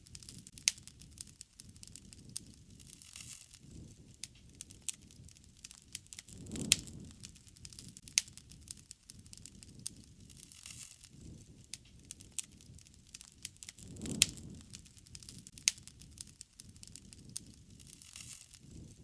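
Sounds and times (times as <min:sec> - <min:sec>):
wood fire crackling and popping: 0:00.0 - 0:19.0
low uneven rumble: 0:06.2 - 0:08.0, 0:13.7 - 0:15.5.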